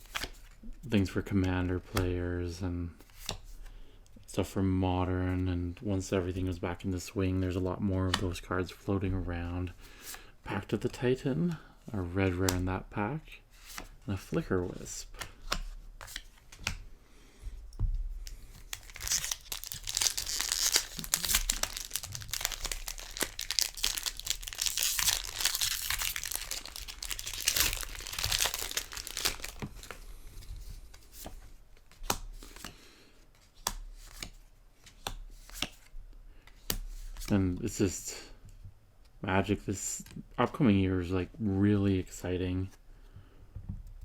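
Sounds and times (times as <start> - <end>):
foil wrapper tearing and crinkling: 18.6 - 30.0.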